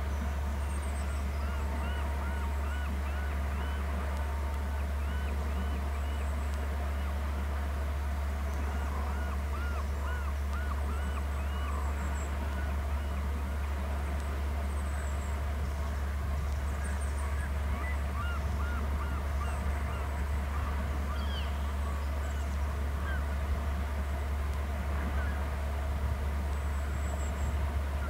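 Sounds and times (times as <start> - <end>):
birds calling: 0.0 - 7.3, 8.3 - 13.6, 14.7 - 23.6
steady low hum: 0.0 - 28.0.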